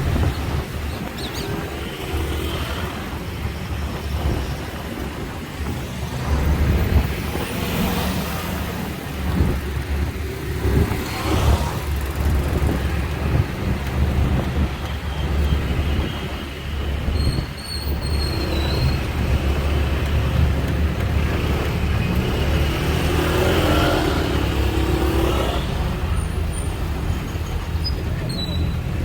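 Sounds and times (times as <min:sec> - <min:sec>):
bus engine rumble: 0:00.0 - 0:29.0
road noise: 0:00.0 - 0:29.0.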